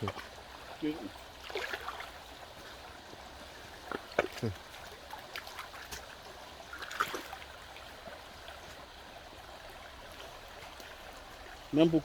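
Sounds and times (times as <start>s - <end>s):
stream water trickling: 0.0s - 12.0s.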